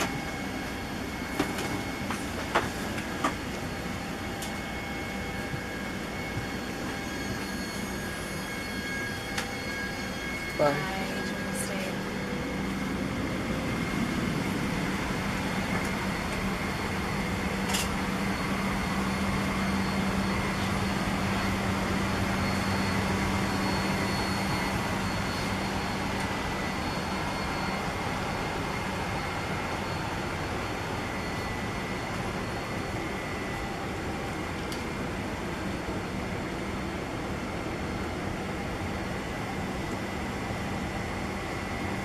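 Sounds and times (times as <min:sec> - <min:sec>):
low steady hum: 0:09.6 - 0:26.6.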